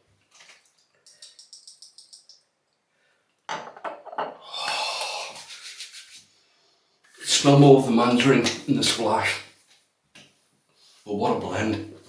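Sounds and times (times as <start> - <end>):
bottle knocks: 3.5 - 4.4
hands rubbing: 5.0 - 6.4.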